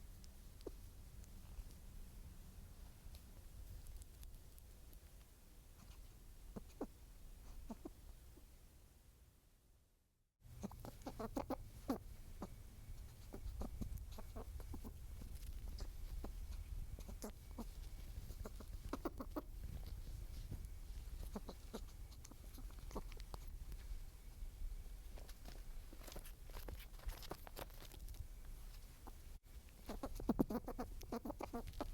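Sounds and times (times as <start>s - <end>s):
low rumble of wind: 0.0s - 9.4s, 10.4s - 31.9s
animal or bird calls: 10.6s - 19.6s, 21.1s - 23.5s, 29.8s - 31.9s.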